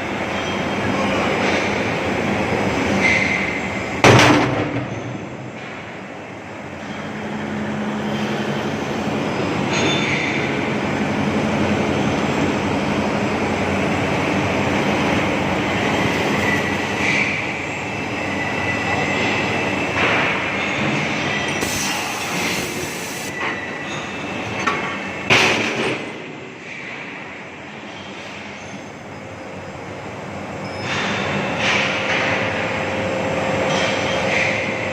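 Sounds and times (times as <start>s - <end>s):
high metallic squeal: 15.7s - 25.2s.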